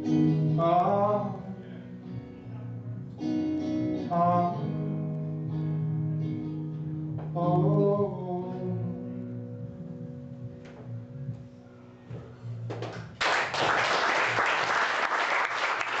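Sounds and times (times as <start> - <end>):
audience applause: 13.1 - 16.0.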